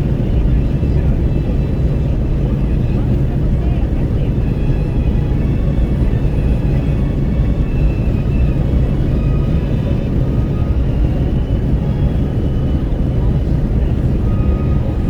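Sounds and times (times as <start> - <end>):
road and tyre rumble: 0.0 - 15.0.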